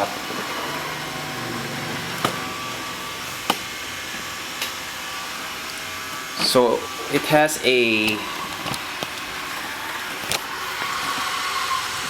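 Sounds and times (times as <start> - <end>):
robot vacuum humming: 0.0 - 12.0.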